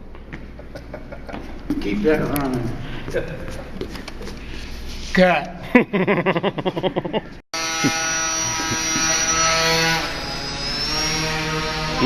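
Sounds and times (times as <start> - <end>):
model airplane motor whine: 7.6 - 12.0.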